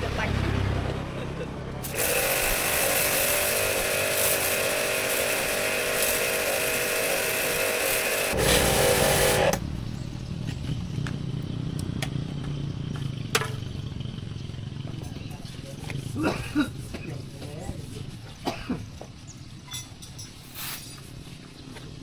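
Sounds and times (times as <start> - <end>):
high-pitched small motor running: 1.8 - 9.6.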